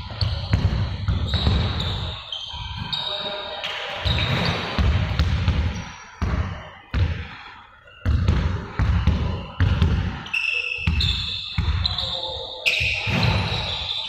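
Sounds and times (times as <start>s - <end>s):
basketballs bouncing on court: 0.0s - 2.2s, 4.0s - 7.4s, 8.0s - 13.9s
shoe squeaks: 0.0s - 4.8s, 8.9s - 14.0s.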